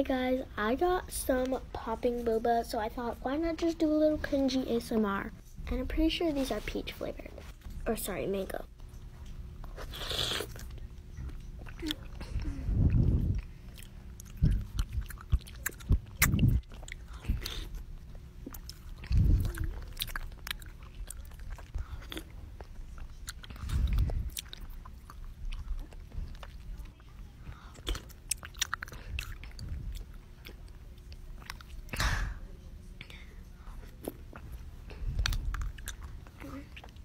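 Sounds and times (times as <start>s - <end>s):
wet chewing clicks and pops: 12.8s - 17.8s, 18.4s - 27.0s, 27.8s - 31.8s, 35.2s - 36.1s.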